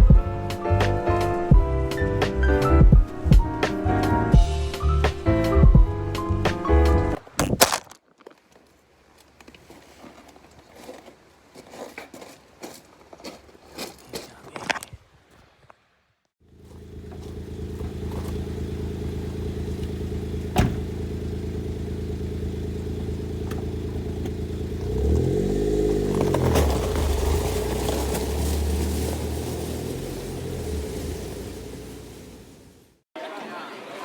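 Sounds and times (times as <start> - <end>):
car engine idling: 16.4 - 33.0.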